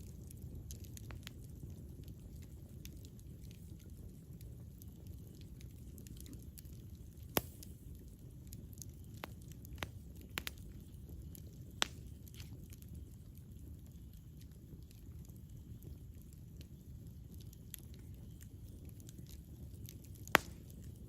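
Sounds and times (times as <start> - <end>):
faint fire crackles: 0.0 - 21.0
low rumble of campfire: 0.0 - 21.0
sharp fire pops: 6.0 - 13.2, 19.2 - 21.0.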